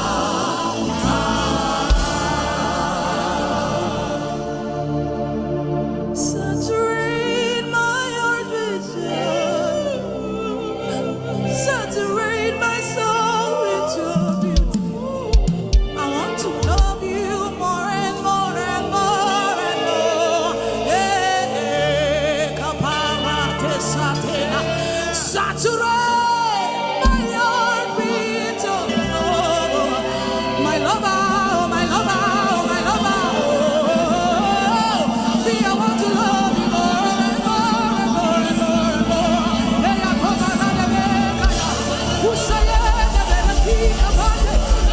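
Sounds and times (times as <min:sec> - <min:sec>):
person singing with vibrato: 0:00.0 - 0:05.1, 0:06.2 - 0:44.9
held instrumental chords: 0:00.0 - 0:06.2
sustained held chords: 0:00.0 - 0:12.9, 0:26.5 - 0:44.9.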